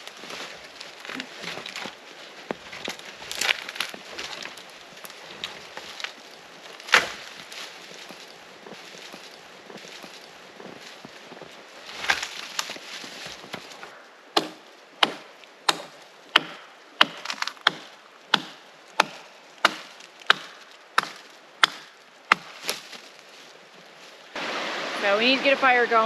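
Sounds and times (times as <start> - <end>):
firewood being chopped: 0.0 - 8.2, 11.9 - 23.1
rustling: 0.0 - 14.8, 18.9 - 26.0.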